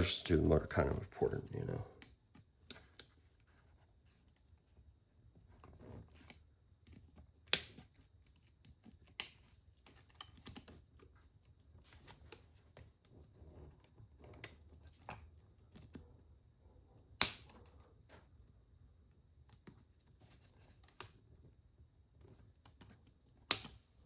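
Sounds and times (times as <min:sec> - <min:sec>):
sharp snaps: 0:17.2 - 0:17.7.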